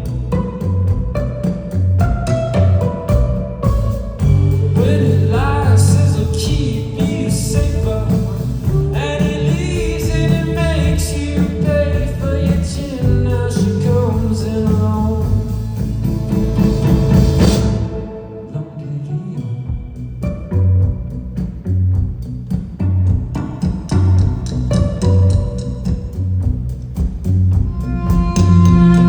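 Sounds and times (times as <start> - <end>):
rock band playing: 0.0 - 18.5, 19.7 - 29.0
sliding lead guitar line: 0.0 - 22.1.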